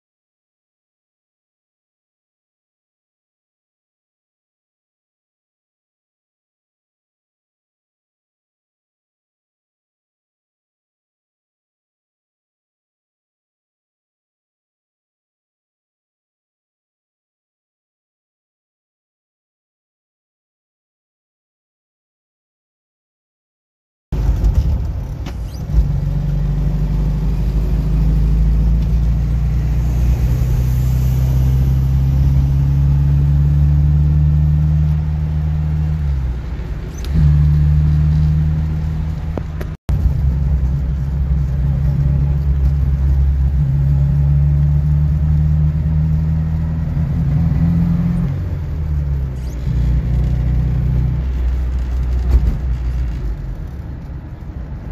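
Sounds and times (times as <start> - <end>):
road noise: 24.2 - 54.9
car engine running: 31.5 - 54.9.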